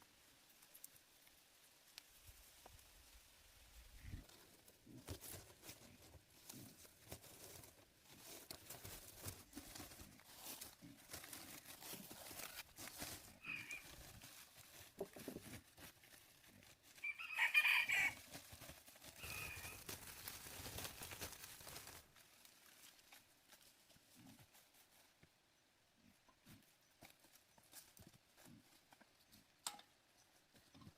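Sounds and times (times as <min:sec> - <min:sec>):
chicken calling: 0:13.4 - 0:14.0, 0:17.0 - 0:18.2, 0:19.2 - 0:19.9.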